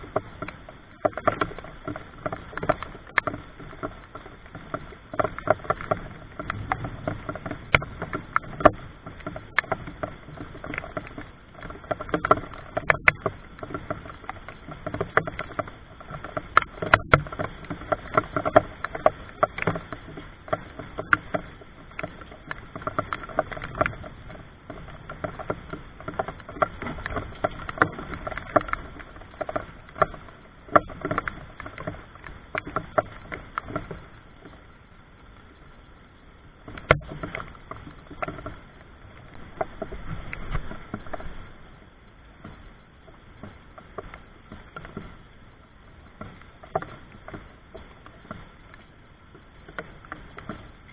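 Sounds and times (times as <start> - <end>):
rain falling: 0.0 - 50.9
drops tapping and splashing: 0.1 - 34.0.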